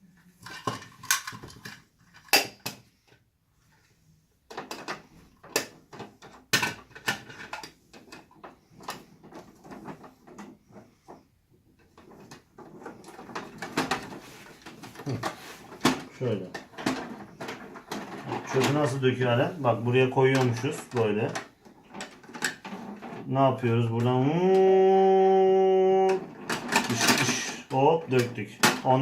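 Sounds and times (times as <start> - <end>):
toy truck plastic parts rattling: 0.1 - 29.0.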